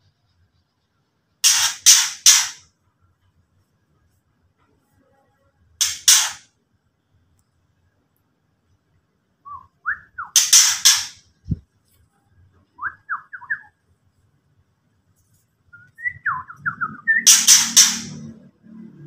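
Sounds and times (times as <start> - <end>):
bird harsh rasping calls: 1.4 - 2.6, 10.3 - 11.2, 16.5 - 18.2
bird down-slurred whistled notes: 15.7 - 17.6.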